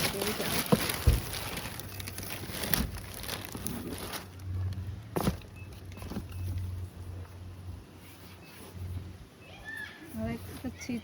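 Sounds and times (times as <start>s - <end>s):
handbag and packaging rustling: 0.0s - 7.2s.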